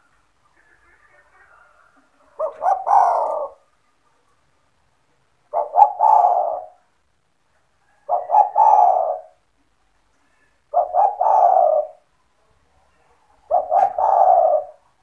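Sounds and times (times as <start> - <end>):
dove cooing: 2.2 - 3.7, 5.5 - 7.0, 7.8 - 9.5, 10.7 - 12.1, 13.4 - 15.0.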